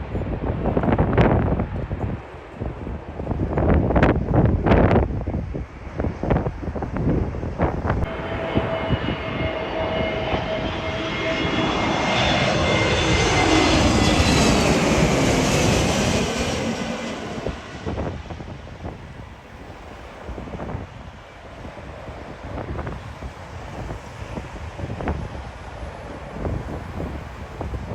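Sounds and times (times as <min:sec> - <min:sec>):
airliner engines passing: 0:00.0 - 0:27.9
wind buffeting microphone: 0:00.0 - 0:27.9.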